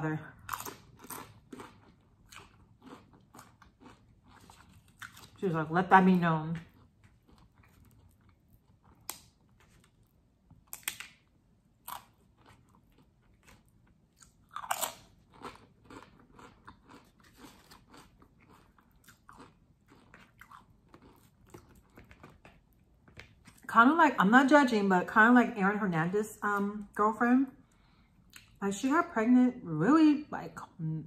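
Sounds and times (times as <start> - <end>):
person chewing crunchy food: 0.4 - 5.4, 6.6 - 23.7.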